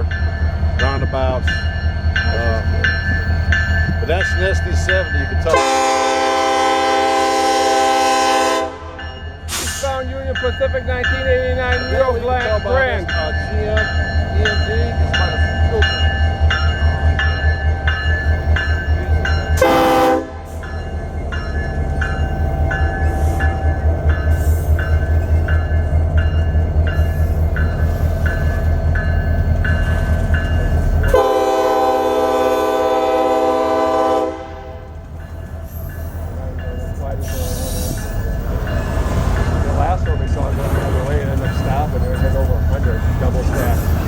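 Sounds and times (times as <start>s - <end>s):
diesel locomotive engine rumble: 0.0s - 44.0s
locomotive bell ringing: 0.0s - 44.0s
locomotive air horn blasts: 5.5s - 9.7s, 19.6s - 20.6s, 31.1s - 35.0s.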